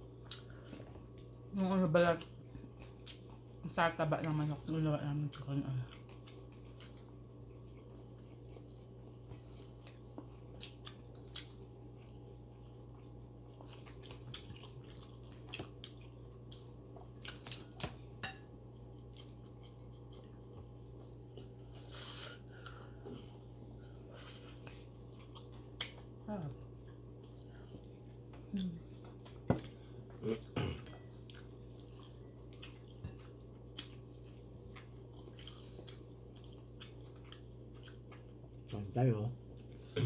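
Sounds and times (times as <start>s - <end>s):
steady low hum: 0.0s - 40.0s
chewing and biting: 5.3s - 23.4s, 24.2s - 39.9s.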